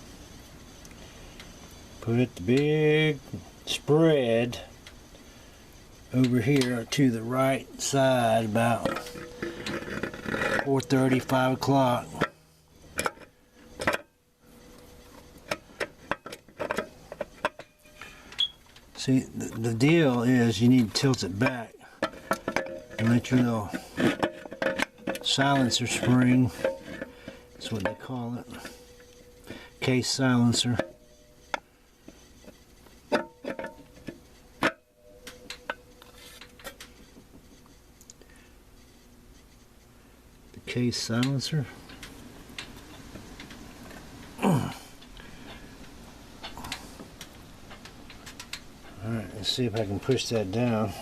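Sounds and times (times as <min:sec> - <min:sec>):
ringing metallic tone: 0:06.2 - 0:12.6, 0:16.8 - 0:32.5, 0:33.1 - 0:36.6
metal parts clinking and knocking: 0:21.0 - 0:29.1.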